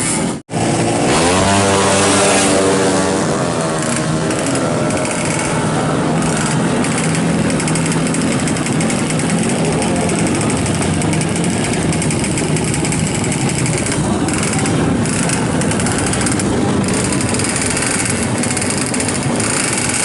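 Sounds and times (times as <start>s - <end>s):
two-stroke motorcycle engine: 0.0s - 20.0s.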